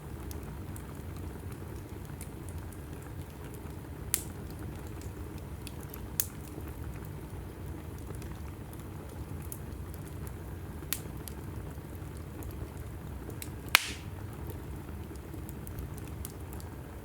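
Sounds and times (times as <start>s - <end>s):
faint fire crackles: 0.0s - 17.0s
low rumble of flames: 0.0s - 17.0s
sharp pops from wood: 13.7s - 14.1s.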